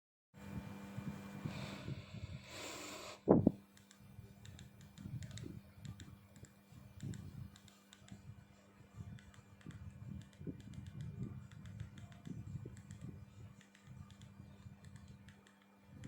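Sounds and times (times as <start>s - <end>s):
steady low hum: 0.4s - 16.0s
small light clicks: 3.7s - 8.3s, 9.1s - 15.8s.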